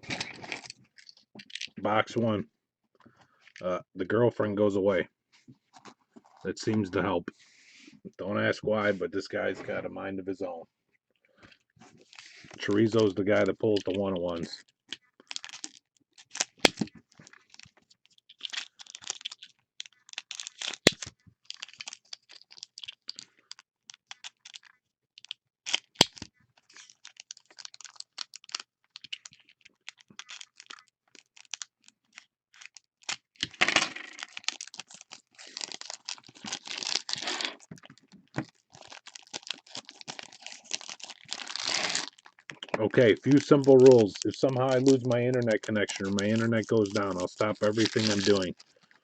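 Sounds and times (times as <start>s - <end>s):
foil wrappers crinkling: 12.1s - 14.4s, 15.2s - 33.5s, 34.1s - 49.0s
cardboard tearing: 34.3s - 37.7s, 38.8s - 42.3s, 43.3s - 48.5s.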